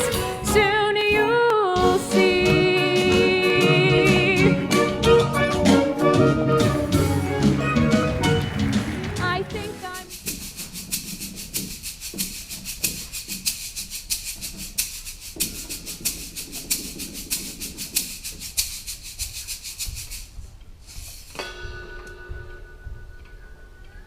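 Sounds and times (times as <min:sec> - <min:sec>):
shaker playing fast rhythm: 0:01.8 - 0:20.4
held orchestral chord: 0:03.8 - 0:10.0.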